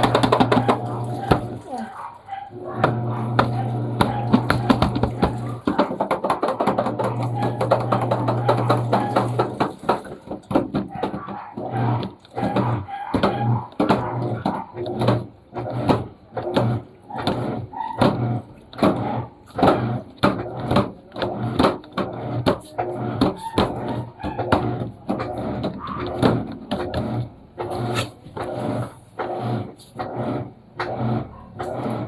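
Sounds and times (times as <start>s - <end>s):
washing machine agitating: 0.0s - 32.0s.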